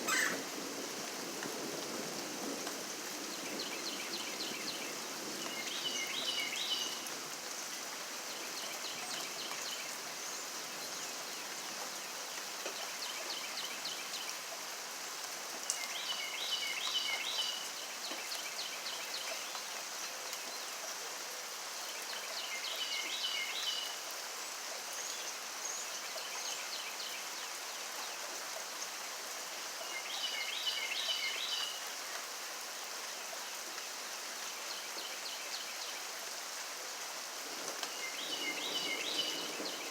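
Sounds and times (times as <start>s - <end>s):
high chirping calls: 0.0s - 0.4s
steady rain hiss: 0.0s - 39.9s.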